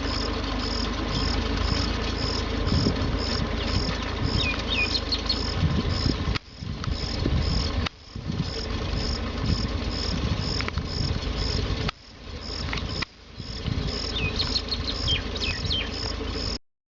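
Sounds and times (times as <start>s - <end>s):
crickets chirping: 0.0s - 16.6s
tractor engine running: 0.0s - 16.6s
bird chirps: 0.1s - 5.6s, 12.9s - 16.6s.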